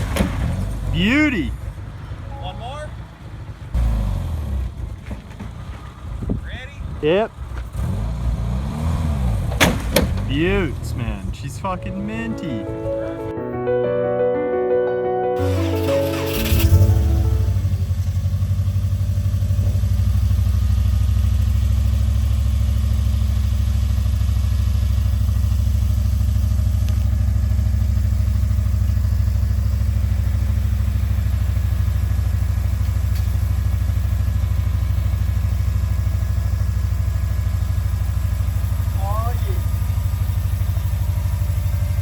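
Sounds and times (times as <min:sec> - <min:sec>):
car engine idling: 0:09.4 - 0:13.1, 0:15.4 - 0:42.0.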